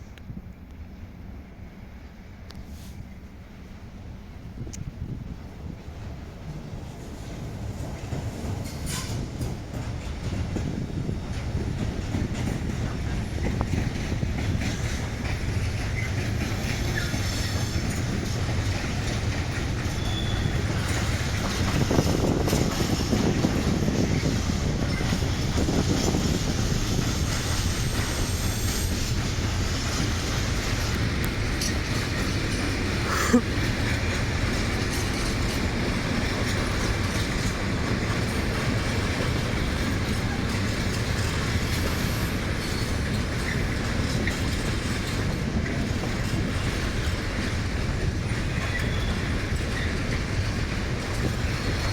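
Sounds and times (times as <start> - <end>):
freight train rumbling: 0.0 - 51.9
wheels clacking over rail joints: 6.5 - 51.9
faint wheel squeal: 19.9 - 20.7, 48.5 - 49.9.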